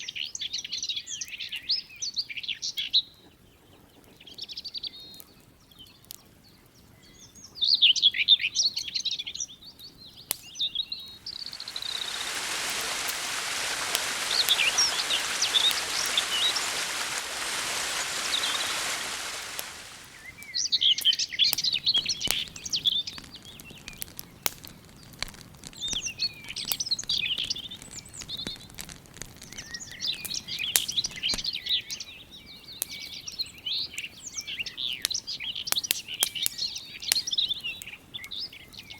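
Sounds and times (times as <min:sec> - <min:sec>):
small birds chirping: 0:11.0 - 0:20.5
campfire crackling: 0:11.1 - 0:20.4
steady rushing hiss: 0:11.2 - 0:20.3.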